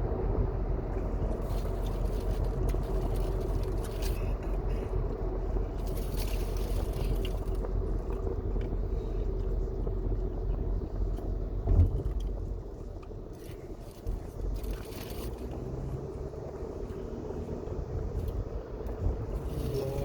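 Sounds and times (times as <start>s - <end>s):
car cabin road rumble: 0.0s - 20.0s
short thump: 11.6s - 12.3s.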